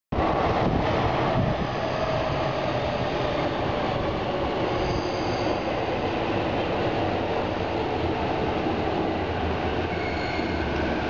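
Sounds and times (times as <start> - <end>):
train wheels rumbling on rail: 0.2 - 11.0
faint high squeal: 4.8 - 5.7, 9.9 - 11.0.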